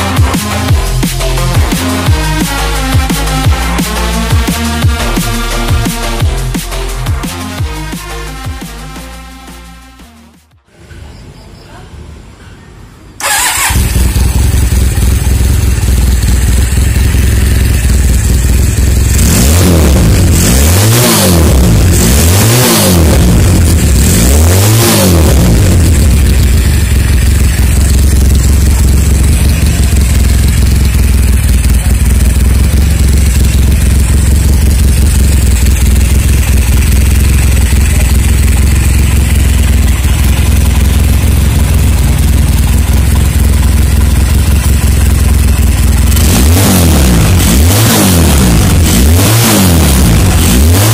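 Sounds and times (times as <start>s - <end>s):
motorcycle engine idling: 13.2s - 22.2s, 22.9s - 24.4s, 25.0s - 50.9s.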